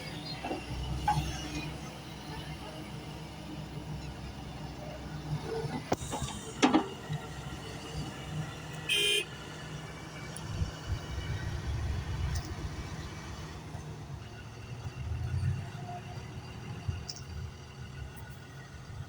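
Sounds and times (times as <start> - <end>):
short horn toot: 8.9 - 9.3.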